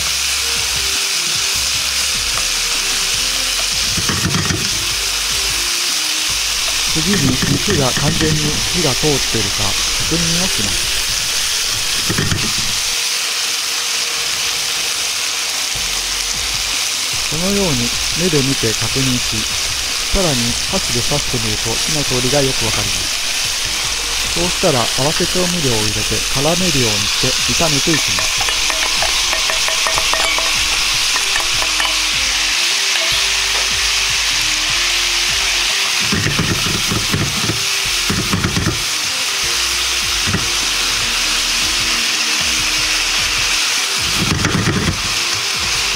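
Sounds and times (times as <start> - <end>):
meat sizzling in a pan: 0.0 - 45.9
sauce being poured: 6.4 - 13.0, 17.2 - 37.2.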